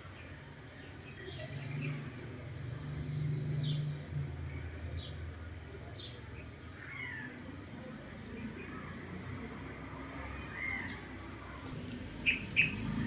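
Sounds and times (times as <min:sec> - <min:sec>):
small birds chirping: 0:10.4 - 0:13.0.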